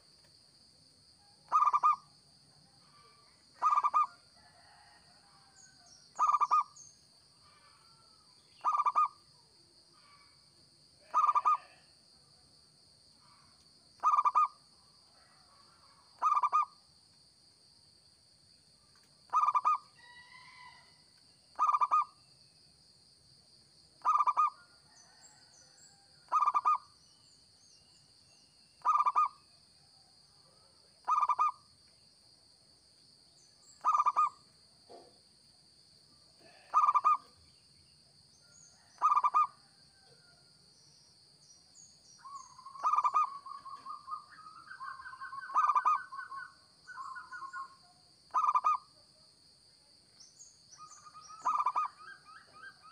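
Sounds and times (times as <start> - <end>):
dove cooing: 1.5 - 2.0, 3.6 - 4.1, 6.2 - 6.7, 8.6 - 9.1, 11.0 - 11.8, 14.0 - 14.5, 16.2 - 16.7, 19.3 - 19.8, 21.6 - 22.0, 24.0 - 25.2, 28.8 - 29.3, 36.4 - 37.3, 38.9 - 39.5, 42.5 - 47.7, 48.3 - 48.8, 51.3 - 52.9.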